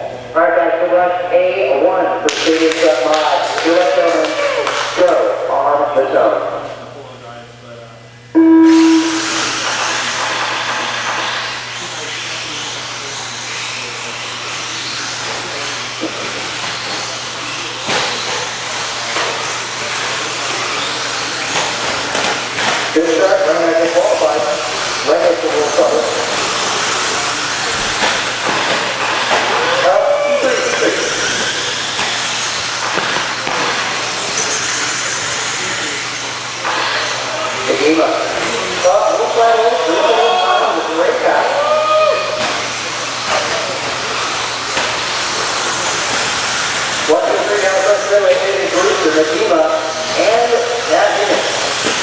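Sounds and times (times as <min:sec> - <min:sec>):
faint high whine: 0:08.3 - 0:10.4
electric rc trucks whirring: 0:09.2 - 0:40.5, 0:42.5 - 0:52.0
rc truck motors and tyres hissing: 0:25.6 - 0:29.2, 0:30.5 - 0:37.6, 0:42.8 - 0:49.4.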